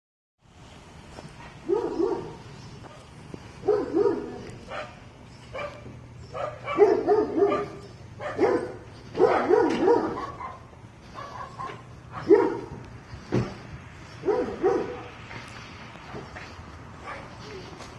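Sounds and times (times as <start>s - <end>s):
steady low hum: 0.5s - 17.9s
dog barking: 1.6s - 3.0s, 3.6s - 12.8s, 14.2s - 15.2s, 17.0s - 17.3s.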